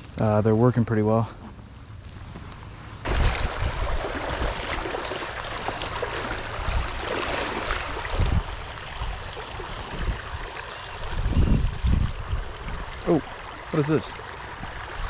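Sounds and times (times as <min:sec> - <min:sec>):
creek water flowing: 0:03.0 - 0:15.0.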